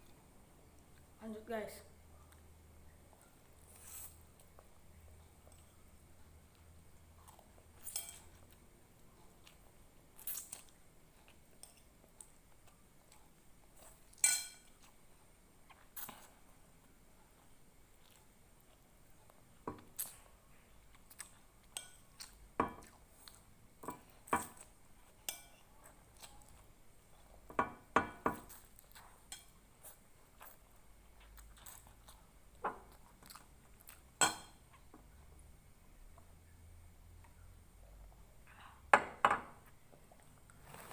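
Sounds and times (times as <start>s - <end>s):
faint chewing: 2.1s - 27.6s, 28.3s - 35.5s
cutlery clinking on a plate: 7.8s - 8.3s, 14.2s - 14.7s.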